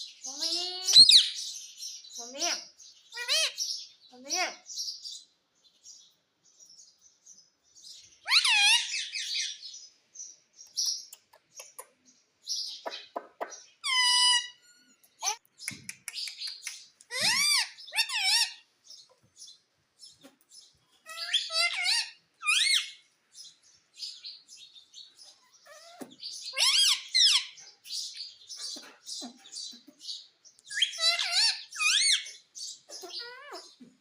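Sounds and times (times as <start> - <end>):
parrot chirping and calling: 0.1 - 5.3, 7.9 - 9.8, 12.5 - 18.7, 21.0 - 23.1, 25.2 - 29.9, 30.6 - 33.9.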